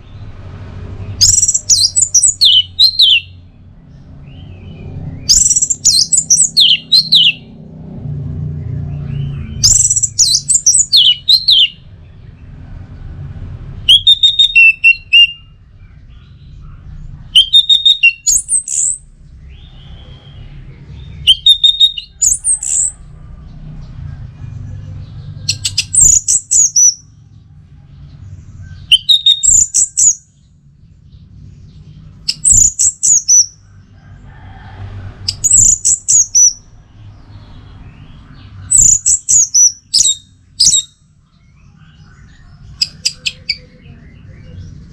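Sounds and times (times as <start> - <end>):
thrush singing: 0.0 - 12.6, 13.4 - 28.2.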